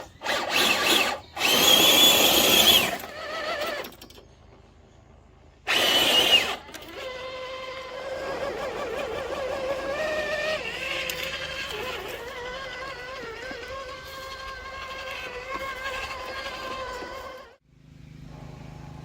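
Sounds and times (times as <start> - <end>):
toy car electric motor whining: 0.0 - 4.2, 5.6 - 17.6.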